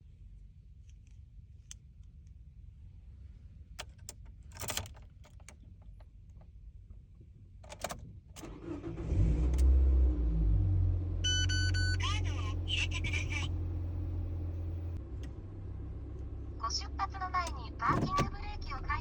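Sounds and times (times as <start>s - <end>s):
keys clicking and jangling: 3.8s - 5.6s
car engine starting and idling: 7.7s - 19.0s
short electronic chime: 11.3s - 12.0s.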